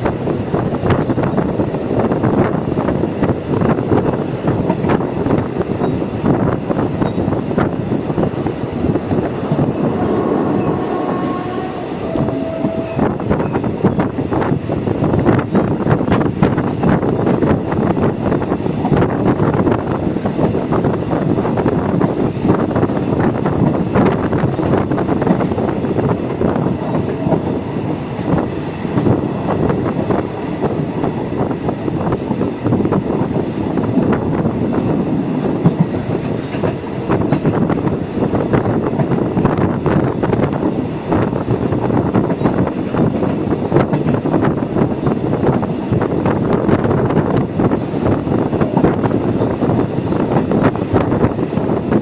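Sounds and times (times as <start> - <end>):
train rumble: 0.0 - 52.0
thin squeal: 8.1 - 13.7
clacks over rail joints: 20.8 - 30.8, 35.5 - 52.0.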